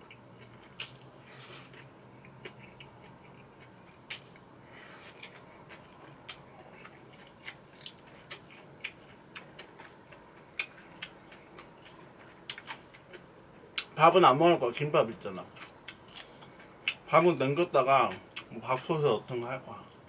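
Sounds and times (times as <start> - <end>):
wet chewing clicks and smacks: 1.7 - 4.5, 5.1 - 13.9.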